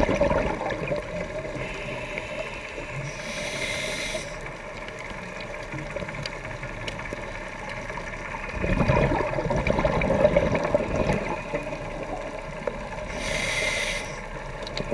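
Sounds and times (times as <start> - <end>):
diver exhaling bubbling rumble: 0.0 - 1.5, 8.4 - 12.4
faint steady hum: 0.0 - 14.9
regulator inhalation hiss: 1.6 - 4.5, 13.1 - 14.3.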